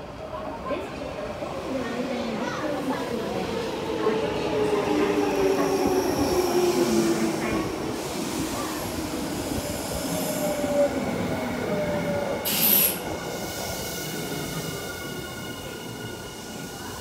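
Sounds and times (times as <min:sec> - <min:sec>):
short sharp hiss: 0:12.5 - 0:13.0.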